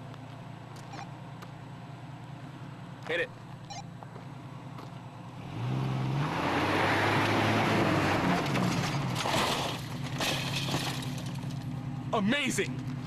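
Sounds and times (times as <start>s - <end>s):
car engine revving: 0.6s - 12.1s
bumper crashing into refrigerator: 8.6s - 11.3s.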